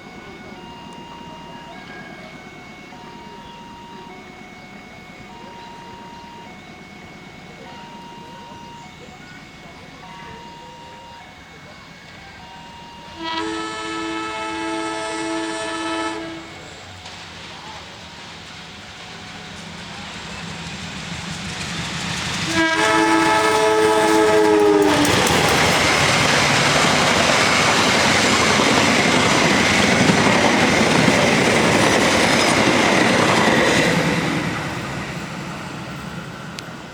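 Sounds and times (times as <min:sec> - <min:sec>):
train horn: 0:00.0 - 0:17.0, 0:22.4 - 0:27.7
train coaches rushing and clattering: 0:00.0 - 0:36.9.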